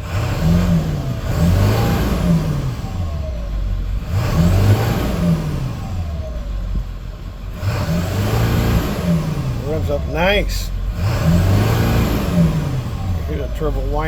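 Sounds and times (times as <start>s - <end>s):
diesel engine revving: 0.0s - 14.0s.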